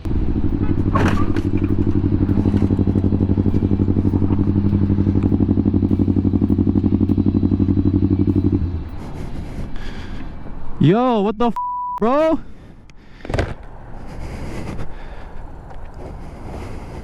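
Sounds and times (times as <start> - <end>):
motorcycle engine idling: 0.0 - 10.4.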